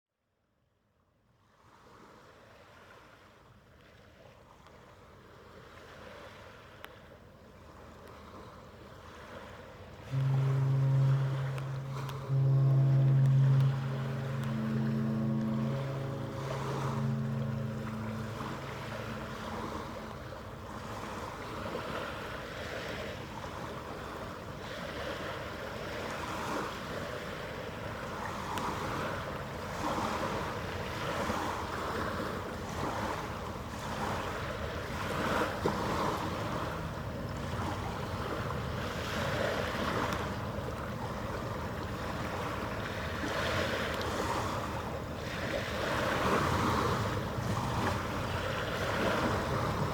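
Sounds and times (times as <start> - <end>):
moving water: 2.2 - 49.9
deep ship horn: 10.0 - 49.9.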